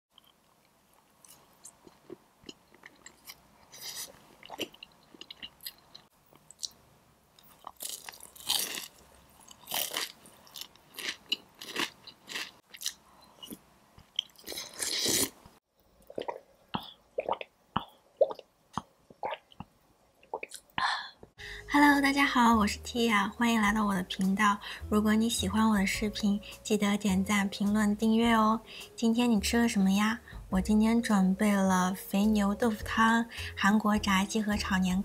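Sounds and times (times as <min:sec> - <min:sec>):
crunching bites: 0:07.4 - 0:13.6.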